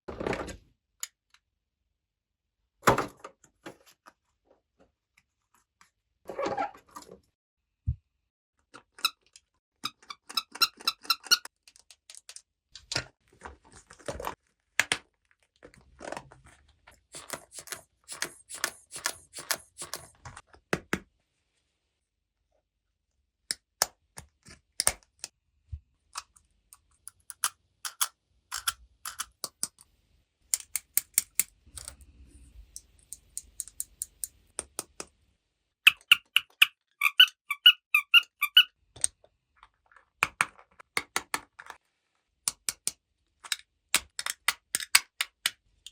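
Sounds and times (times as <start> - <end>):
plastic toy pieces clicking: 26.2 - 29.8, 30.5 - 32.0, 42.5 - 45.9.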